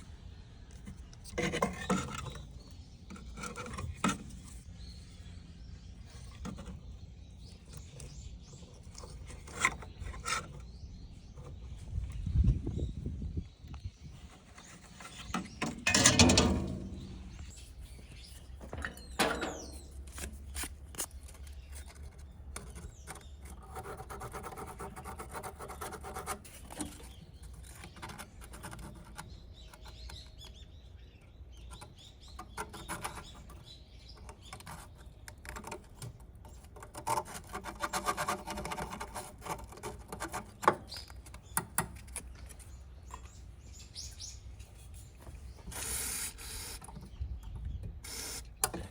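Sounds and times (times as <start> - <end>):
scraping or rubbing: 14.3 - 17.6
parts clattering: 15.2 - 17.6, 18.6 - 20.8
tools clicking and knocking: 15.6 - 17.5, 18.6 - 20.3.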